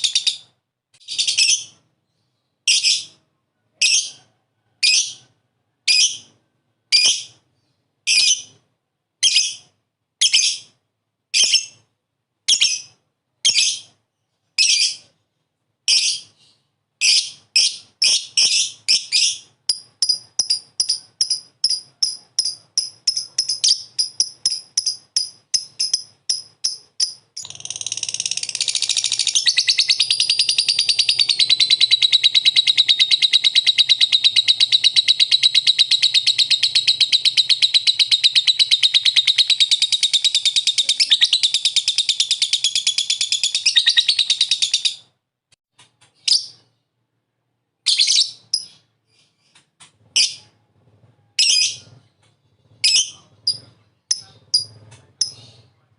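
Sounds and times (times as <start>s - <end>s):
lovebird high chirps: 0.0s - 3.2s, 5.9s - 7.4s, 8.1s - 8.6s, 9.2s - 10.8s, 11.4s - 11.8s, 14.6s - 15.1s, 15.9s - 45.1s, 47.8s - 49.6s, 50.2s - 50.5s, 51.4s - 52.0s, 52.8s - 55.7s
lovebird rapid chattering trill: 17.0s - 45.0s, 52.8s - 55.6s.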